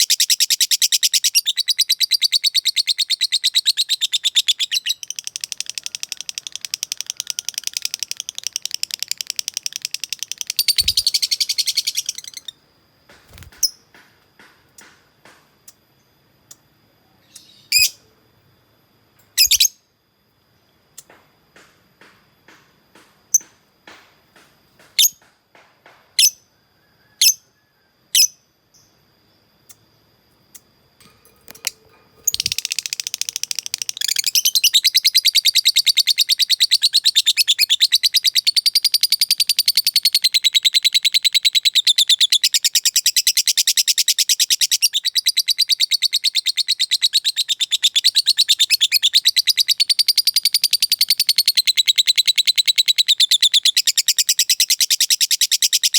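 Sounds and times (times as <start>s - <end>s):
bird fast chattering trill: 0.0s - 12.5s, 31.6s - 39.2s
bird sharp chirps: 0.0s - 12.6s, 19.3s - 19.8s, 31.5s - 38.9s.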